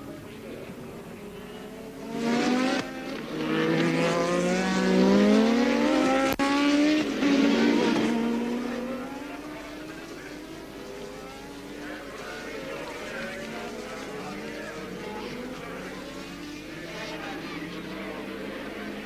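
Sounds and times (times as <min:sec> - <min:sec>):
racing car engines accelerating: 0:00.0 - 0:19.0.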